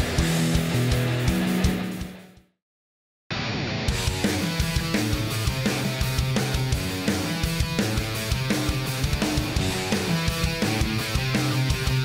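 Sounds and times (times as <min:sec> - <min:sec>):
rock music with electric guitar: 0:00.0 - 0:02.4, 0:03.3 - 0:12.0.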